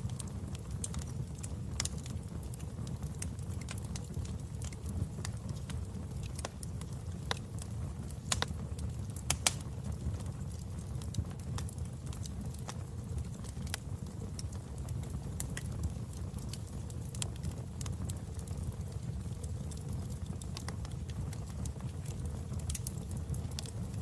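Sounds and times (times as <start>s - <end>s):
low fire rumble: 0.0s - 24.0s
wood fire crackling and popping: 0.0s - 24.0s.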